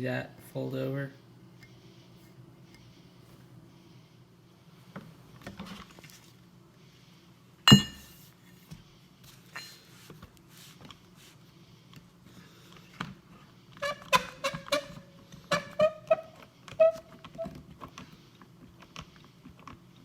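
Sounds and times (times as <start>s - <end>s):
sharp metal clank: 7.7s - 8.1s.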